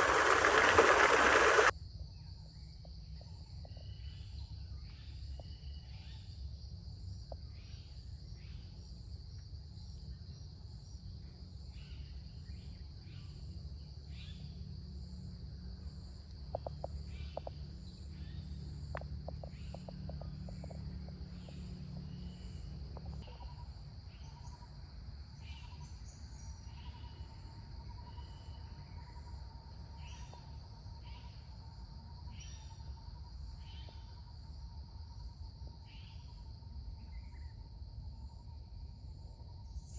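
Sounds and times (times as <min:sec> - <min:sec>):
short chirping calls: 0:00.0 - 0:01.7.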